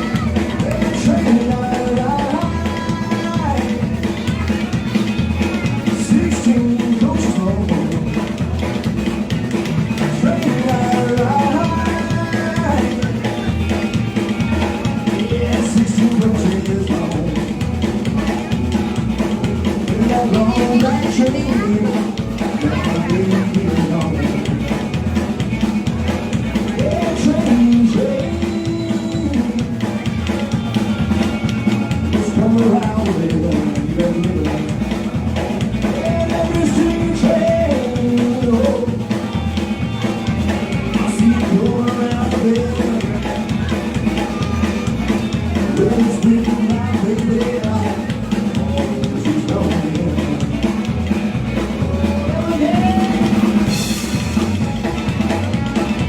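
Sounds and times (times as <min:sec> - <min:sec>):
bass guitar: 0:00.0 - 0:56.0
drum kit beat: 0:00.0 - 0:56.0
electric guitar melody: 0:00.0 - 0:56.0.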